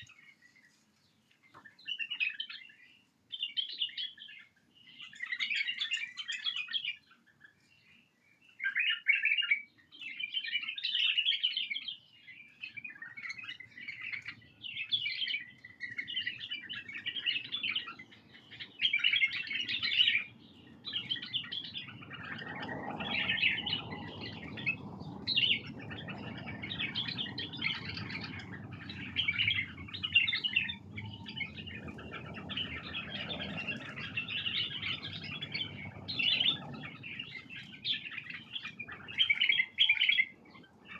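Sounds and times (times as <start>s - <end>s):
bulbuls chattering chirps: 12.6s - 40.9s
low rumbling noise: 20.2s - 39.6s.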